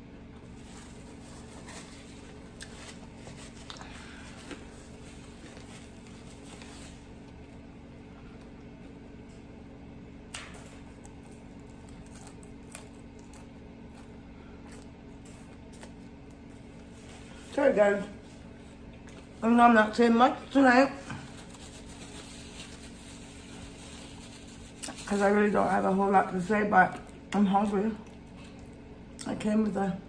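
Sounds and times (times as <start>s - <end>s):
steady low hum: 0.0s - 30.0s
chewing: 10.9s - 16.5s, 28.0s - 29.3s.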